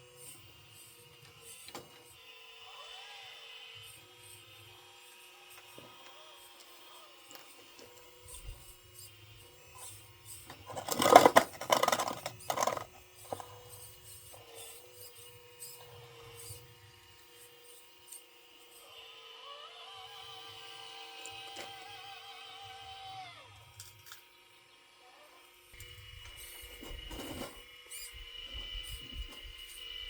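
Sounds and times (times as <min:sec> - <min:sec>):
small electric motors whirring: 0:00.0 - 0:30.0
scraping and clattering: 0:10.5 - 0:13.6.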